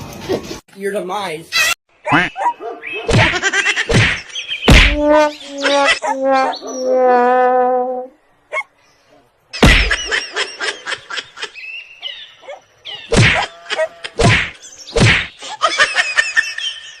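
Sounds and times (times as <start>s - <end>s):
heavy whacks: 3.1s - 5.2s, 9.6s - 10.1s, 13.1s - 13.5s, 14.2s - 15.4s.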